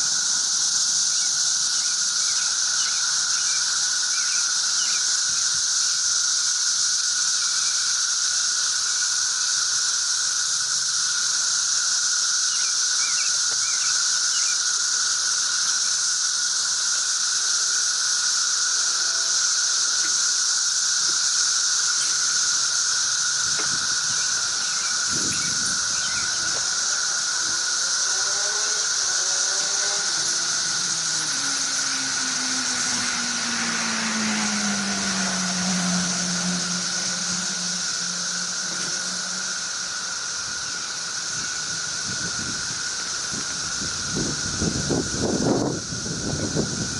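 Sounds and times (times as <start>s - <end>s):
cicadas droning: 0.0s - 46.9s
low hum gliding down: 18.9s - 46.9s.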